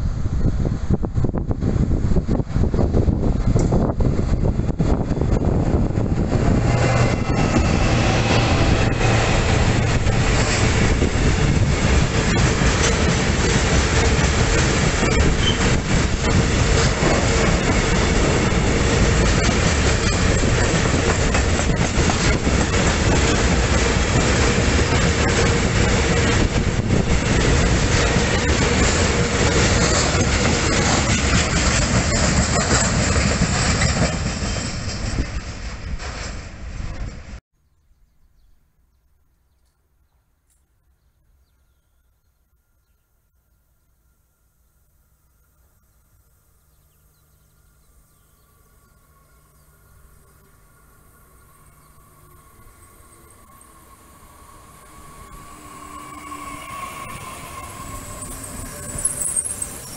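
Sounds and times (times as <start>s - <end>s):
locomotive engine running: 1.6s - 37.2s
freight wagons rumbling: 1.6s - 37.4s.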